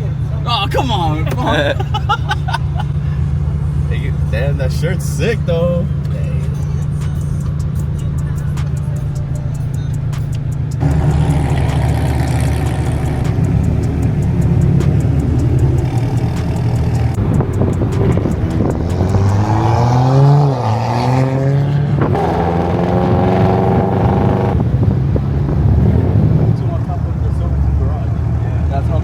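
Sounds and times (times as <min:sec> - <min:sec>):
car engine revving: 0:00.0 - 0:29.0
car engines running: 0:00.0 - 0:29.0.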